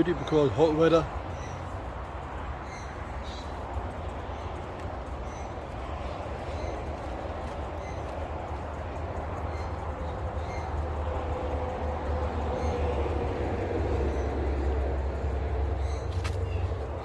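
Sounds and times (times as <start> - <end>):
rumble of passing traffic: 0.0 - 17.0.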